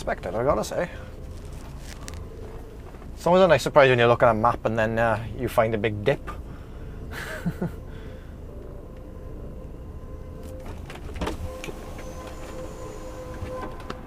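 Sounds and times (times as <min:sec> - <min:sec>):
lorry engine running low: 0:00.0 - 0:14.0
high brake squeal: 0:09.5 - 0:14.0.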